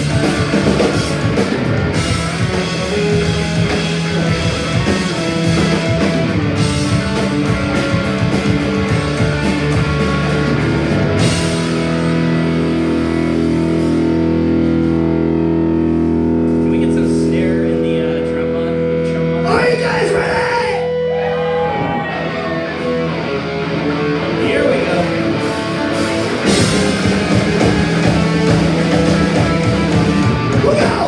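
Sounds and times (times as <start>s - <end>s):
drum kit: 0.0s - 17.2s, 24.3s - 31.0s
bass guitar: 0.0s - 31.0s
electric guitars: 0.0s - 31.0s.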